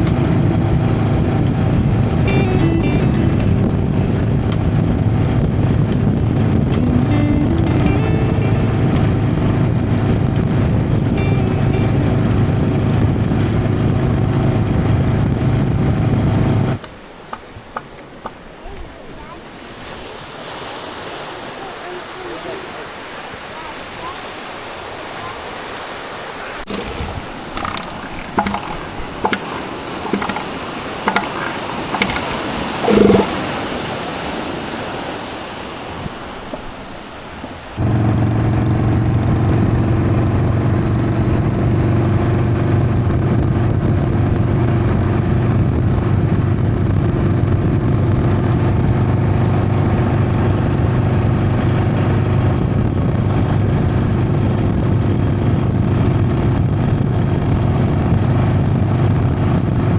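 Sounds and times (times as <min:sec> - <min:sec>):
motorcycle engine running: 0:00.0 - 0:16.8, 0:26.7 - 0:33.4, 0:37.8 - 0:59.9
knocks and clatter: 0:26.7 - 0:33.3.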